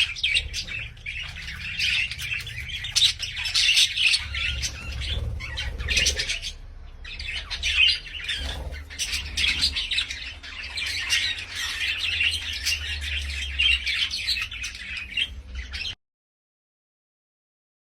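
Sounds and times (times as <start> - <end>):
parrot squawking and chattering: 0.0 - 16.0.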